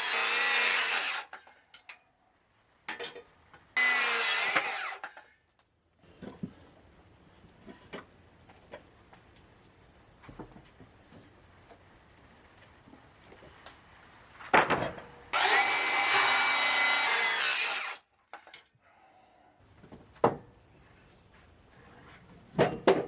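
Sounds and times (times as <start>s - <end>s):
power saw cutting wood: 0.0s - 1.5s, 3.8s - 5.3s, 15.3s - 18.0s.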